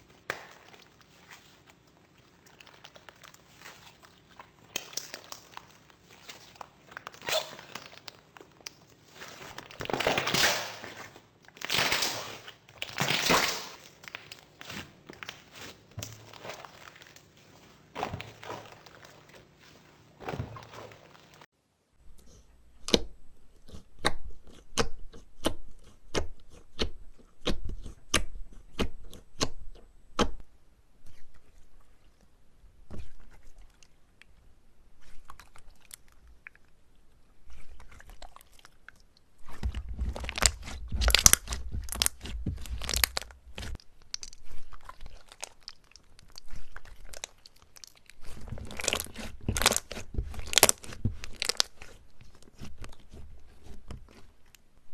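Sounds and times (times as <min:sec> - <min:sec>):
slime crunchy crackling: 0:00.0 - 0:21.5, 0:39.4 - 0:54.6
slime popping: 0:00.0 - 0:21.5, 0:39.4 - 0:54.2.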